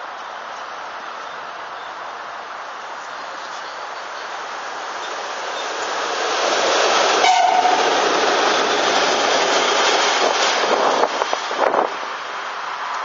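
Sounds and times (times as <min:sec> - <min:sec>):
train wheels on rails: 0:00.0 - 0:13.0
train horn tone: 0:07.2 - 0:08.0.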